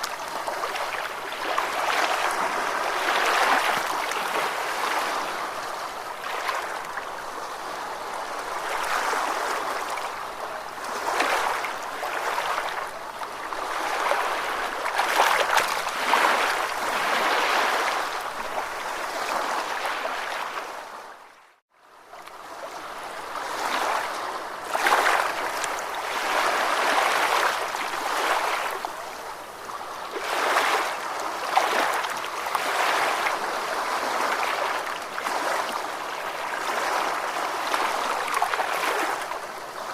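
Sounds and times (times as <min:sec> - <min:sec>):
ocean waves washing: 0:00.0 - 0:20.8.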